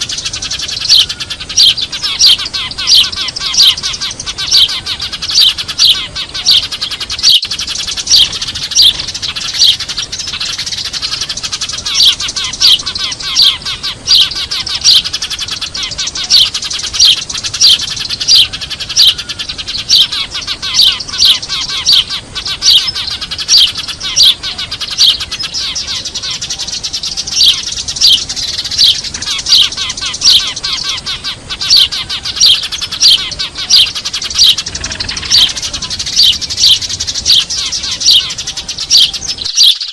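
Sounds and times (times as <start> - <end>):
loud sharp sparrow lure chirps: 0.0 - 39.9
sparrows chattering: 0.0 - 39.9.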